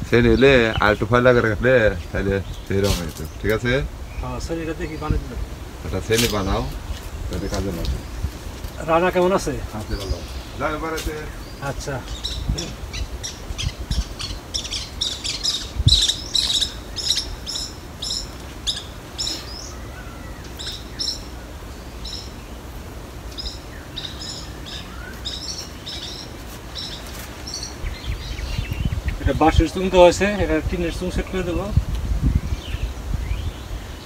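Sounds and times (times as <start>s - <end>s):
small bird chirping: 6.1s - 22.6s, 23.3s - 29.7s.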